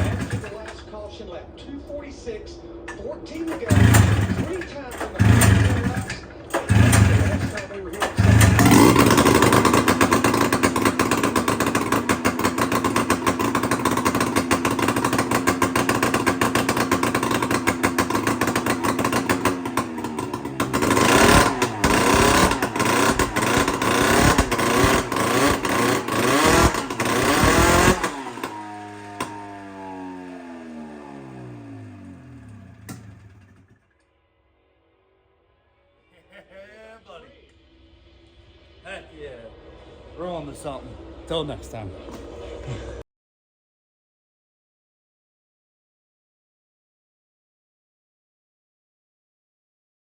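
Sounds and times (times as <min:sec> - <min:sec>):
two-stroke engine revving: 0:00.0 - 0:00.8, 0:03.4 - 0:33.9.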